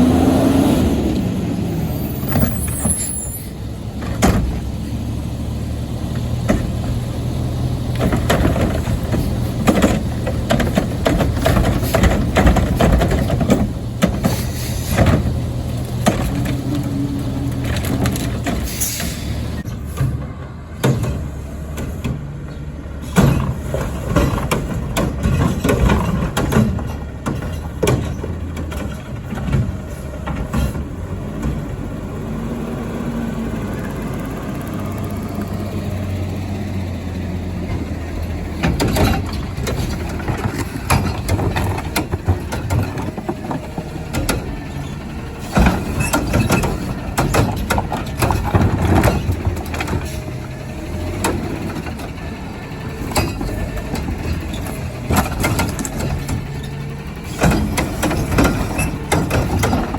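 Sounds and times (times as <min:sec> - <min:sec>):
garbage truck engine running: 0:00.0 - 0:59.9
metal clanks and bangs: 0:07.9 - 0:16.8, 0:23.0 - 0:30.9, 0:37.6 - 0:59.9.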